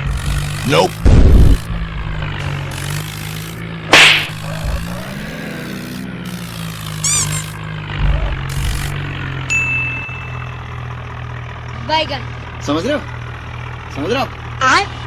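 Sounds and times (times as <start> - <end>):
tractor engine idling: 0.0 - 15.0
whip-like swish: 3.9 - 5.0.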